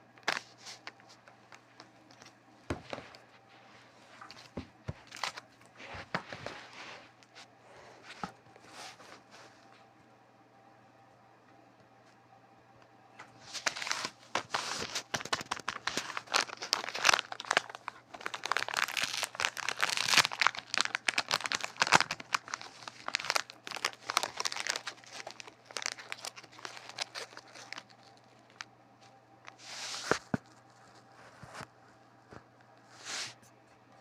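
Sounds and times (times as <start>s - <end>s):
wrapping crumpling and tearing: 4.1s - 6.6s, 13.4s - 28.7s.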